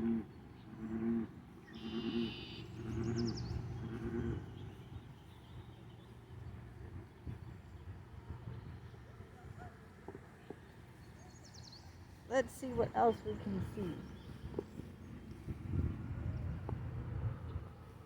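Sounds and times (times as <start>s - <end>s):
low animal call: 0.0s - 4.6s.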